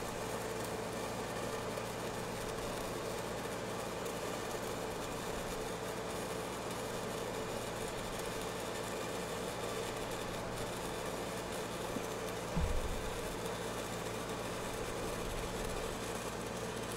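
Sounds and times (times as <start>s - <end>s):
welding arc crackle and hiss: 0.0s - 16.9s
steady hum: 12.0s - 16.0s.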